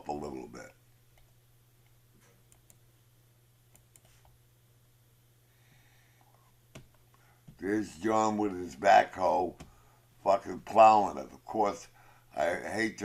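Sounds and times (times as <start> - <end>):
steady low hum: 0.0 - 13.0
computer mouse clicks: 1.1 - 2.8, 3.7 - 4.4.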